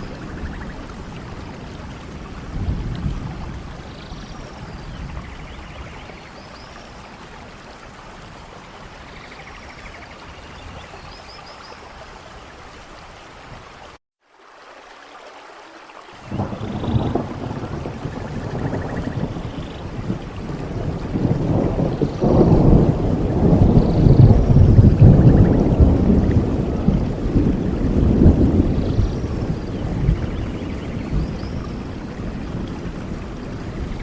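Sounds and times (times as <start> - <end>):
thunder rumbling: 0.0 - 7.0, 16.2 - 34.0
steady rain: 0.0 - 34.0.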